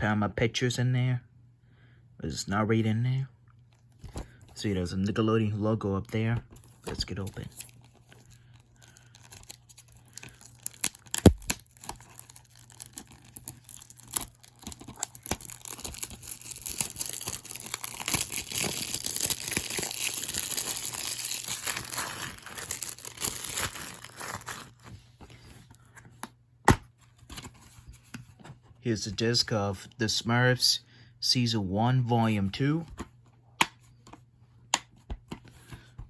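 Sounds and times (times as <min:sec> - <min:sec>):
plastic wrapping tearing and crinkling: 0:07.5 - 0:24.9.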